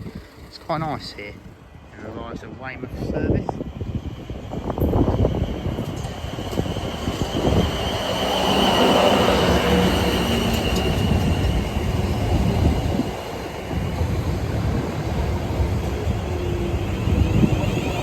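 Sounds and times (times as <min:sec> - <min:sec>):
electric train rumbling: 0:00.0 - 0:18.0.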